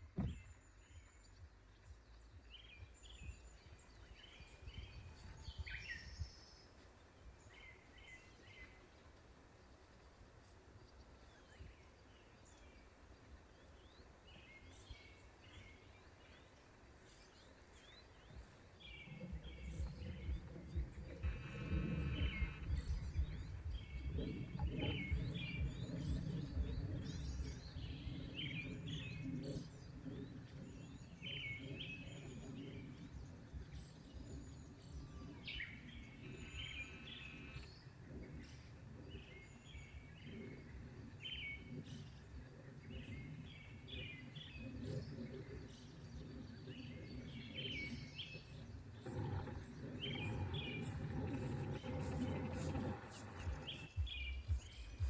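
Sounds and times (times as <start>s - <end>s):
small birds chirping: 0.0s - 55.0s
steady low rumble: 0.0s - 55.0s.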